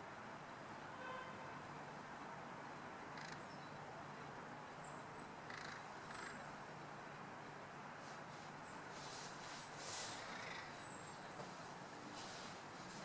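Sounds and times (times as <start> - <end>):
town background noise: 0.0 - 13.0
short bird calls: 5.2 - 6.6, 10.0 - 11.4.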